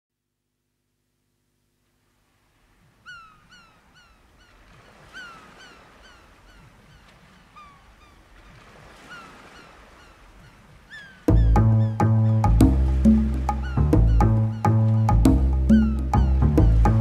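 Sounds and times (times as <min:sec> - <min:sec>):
low steady hiss: 0:00.2 - 0:04.6
bird calling: 0:02.9 - 0:17.0.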